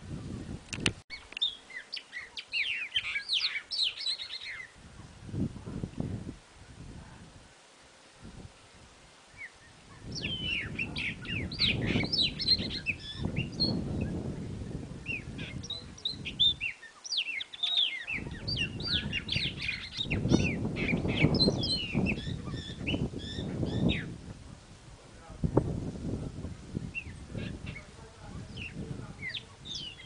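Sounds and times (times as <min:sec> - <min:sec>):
birds chirping and whistling: 0:01.1 - 0:04.7, 0:09.3 - 0:14.2, 0:15.0 - 0:24.1, 0:26.8 - 0:27.9, 0:28.5 - 0:30.0.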